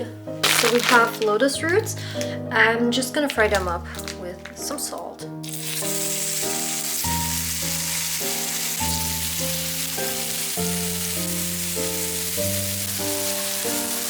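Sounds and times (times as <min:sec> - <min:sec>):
background music: 0:00.0 - 0:14.0
food sizzling in oil: 0:05.4 - 0:14.0.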